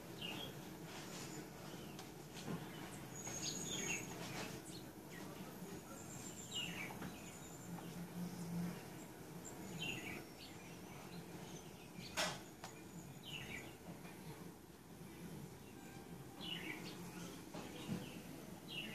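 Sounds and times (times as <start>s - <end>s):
bird chirping: 2.6s - 8.4s, 9.4s - 13.8s, 15.6s - 18.9s.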